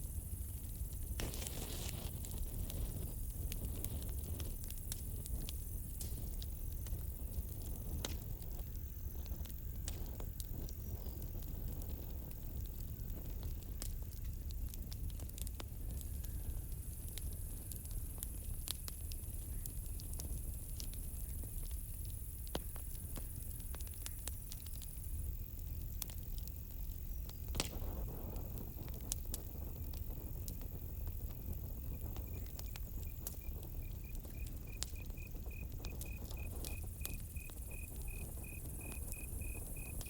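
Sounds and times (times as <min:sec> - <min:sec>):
campfire crackling and popping: 0:00.0 - 0:40.0
cricket chirping: 0:30.2 - 0:40.0.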